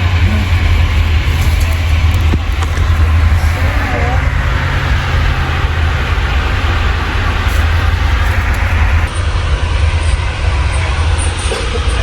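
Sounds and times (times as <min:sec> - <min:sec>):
train rumbling: 0:00.0 - 0:09.1.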